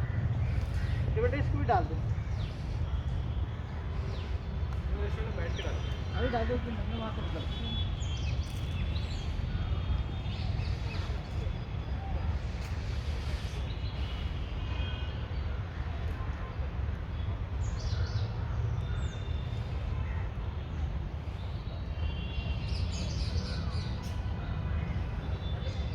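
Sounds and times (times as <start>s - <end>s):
birds chirping: 0.1s - 15.1s.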